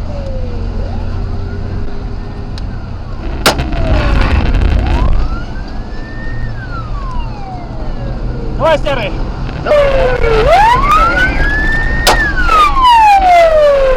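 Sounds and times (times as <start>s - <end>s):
police siren wailing: 0.0s - 13.9s
sharp gunshot: 3.4s - 4.3s, 12.0s - 12.4s.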